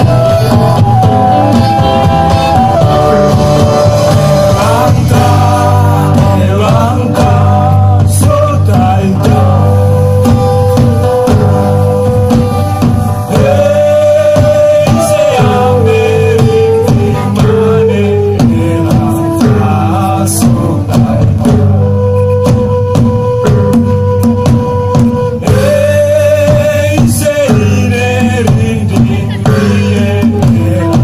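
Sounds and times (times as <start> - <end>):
singer holding long gliding notes: 0.0 - 23.4
guitar accompaniment: 0.0 - 31.0.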